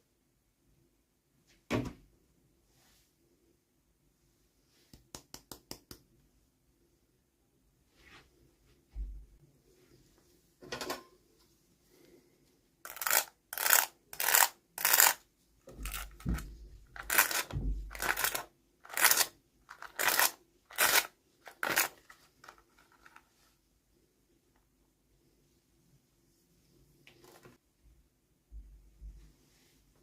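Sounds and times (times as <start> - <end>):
plastic packaging crinkling: 17.0 - 23.2.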